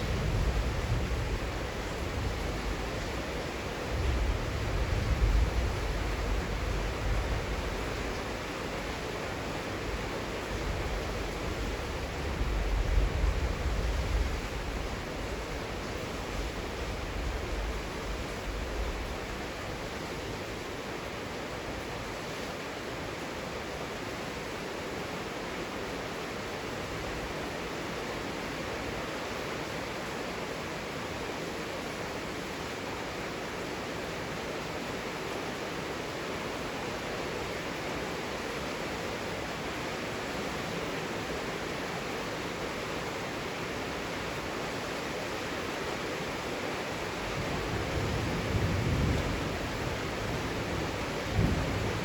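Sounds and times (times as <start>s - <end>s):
heavy rain falling: 0.0s - 52.0s
low thunder rumble: 47.4s - 52.0s.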